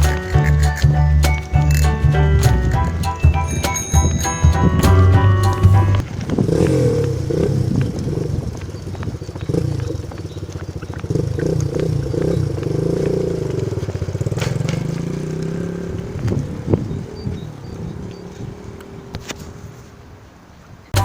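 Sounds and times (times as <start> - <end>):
bicycle rattling on bumpy path: 6.0 - 16.9.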